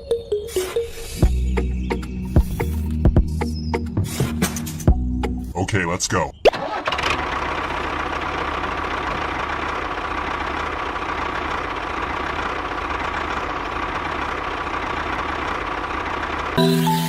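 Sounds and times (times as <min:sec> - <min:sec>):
small tractor motor humming: 0:06.6 - 0:17.0.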